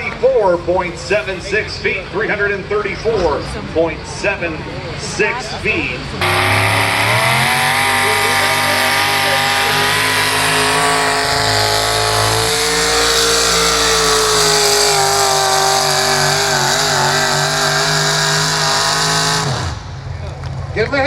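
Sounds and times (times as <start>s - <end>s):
tractor engine at high revs: 6.2s - 20.4s.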